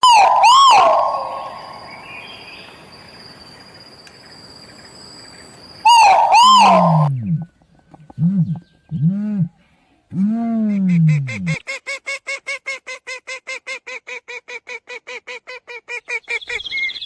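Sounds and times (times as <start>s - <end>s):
bird calling loudly: 0.0s - 2.6s, 5.8s - 9.1s, 15.9s - 17.0s.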